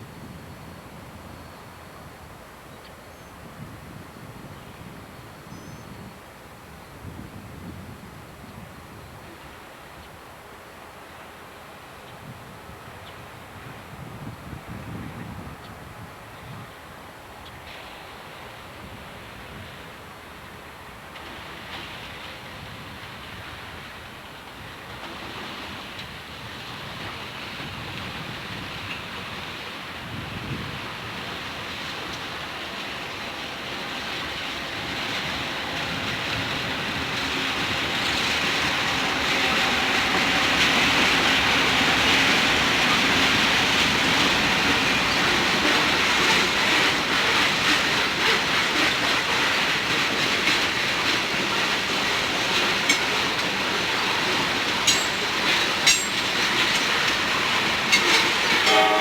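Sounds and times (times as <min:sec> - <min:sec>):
freight train rumbling: 0:00.0 - 0:59.0
wheels clattering over rail joints: 0:21.1 - 0:59.0.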